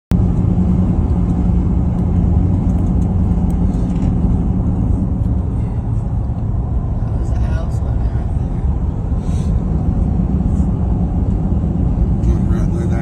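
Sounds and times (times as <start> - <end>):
car engine and tyre rumble: 0.1 - 13.0.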